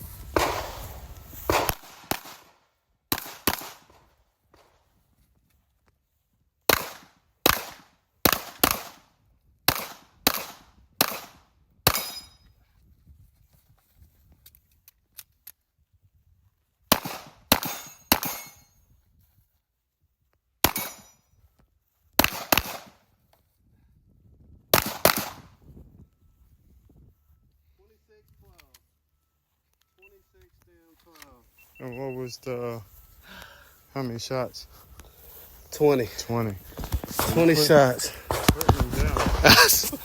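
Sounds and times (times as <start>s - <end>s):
gunshots with echo: 0.3s - 2.4s.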